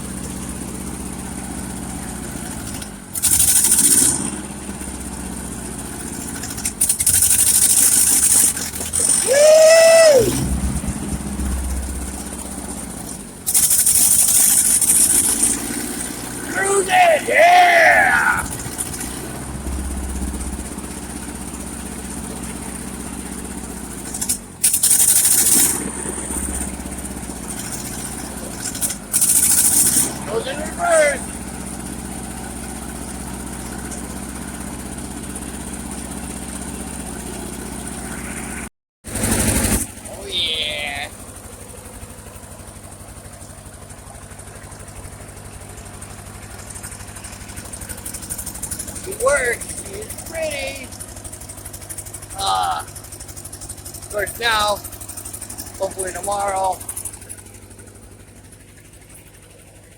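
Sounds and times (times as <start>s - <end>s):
tractor engine running: 0.0s - 59.9s
loud hissing rush: 9.2s - 12.9s, 16.4s - 23.1s.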